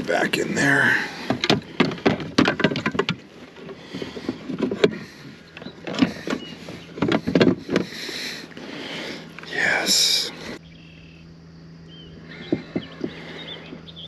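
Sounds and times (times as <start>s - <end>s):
gear knocking on plastic kayak: 1.1s - 8.0s, 12.3s - 13.3s.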